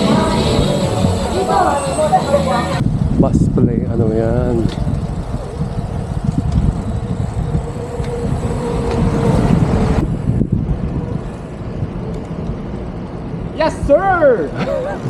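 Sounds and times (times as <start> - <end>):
heavy vehicle engine whining: 0.0 - 3.1, 4.6 - 11.8
road traffic noise: 0.0 - 15.0
wind buffeting microphone: 0.0 - 15.0.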